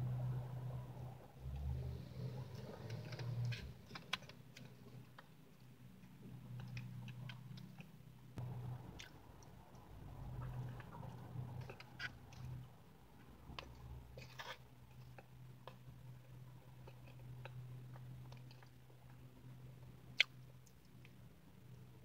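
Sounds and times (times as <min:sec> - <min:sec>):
low steady hum: 0:00.0 - 0:22.0
person chewing: 0:08.9 - 0:19.3.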